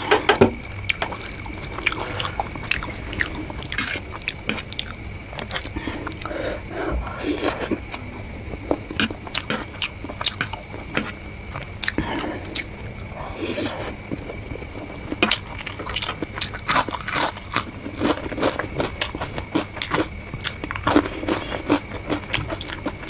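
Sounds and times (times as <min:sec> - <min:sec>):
chewing noodles with wet smacks: 0:15.0 - 0:23.0.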